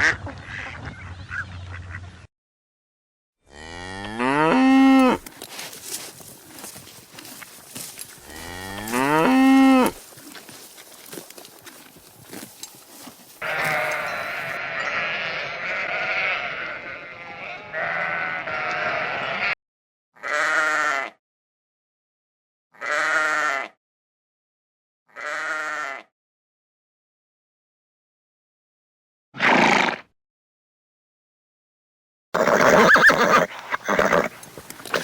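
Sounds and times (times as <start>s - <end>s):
sheep bleating: 3.7s - 10.1s, 13.4s - 19.6s, 20.2s - 21.2s, 22.8s - 23.7s, 25.1s - 26.1s.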